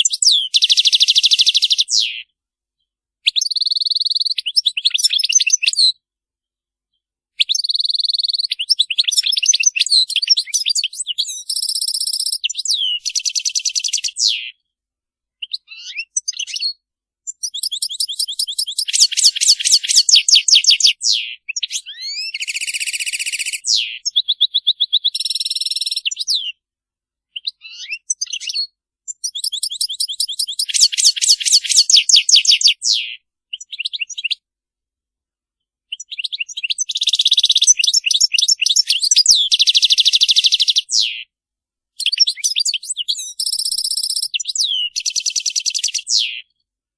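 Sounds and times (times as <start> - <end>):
goldfinch twittering: 17.5 - 20.9, 29.3 - 32.8.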